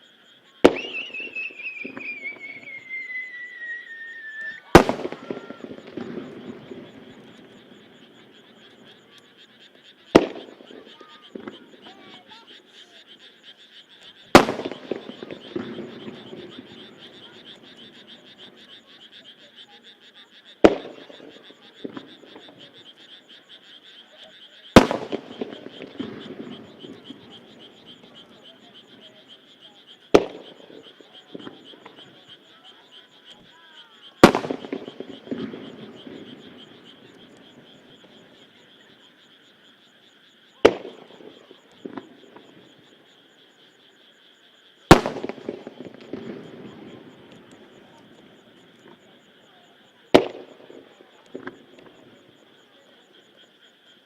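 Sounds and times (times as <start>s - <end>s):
frogs croaking: 0.0s - 54.0s
firework shells bursting: 0.6s - 8.0s, 14.3s - 17.4s, 24.8s - 28.2s, 30.1s - 32.1s, 34.2s - 38.4s, 40.6s - 42.8s, 44.9s - 49.0s, 50.1s - 51.9s
firework crackling: 0.6s - 9.0s, 10.1s - 12.4s, 14.3s - 18.0s, 24.7s - 29.0s, 30.1s - 32.2s, 34.2s - 38.6s, 40.6s - 42.8s, 44.9s - 49.1s, 50.1s - 52.3s.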